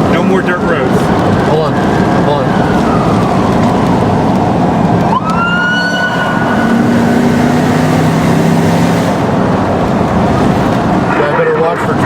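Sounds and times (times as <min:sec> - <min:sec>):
moving car noise: 0:00.0 - 0:12.0
siren: 0:00.8 - 0:08.2.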